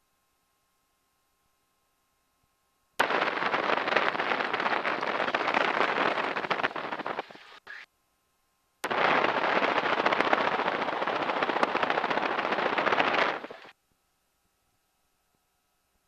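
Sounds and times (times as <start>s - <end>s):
radial aircraft engine crackling: 3.0s - 7.8s, 8.8s - 13.7s.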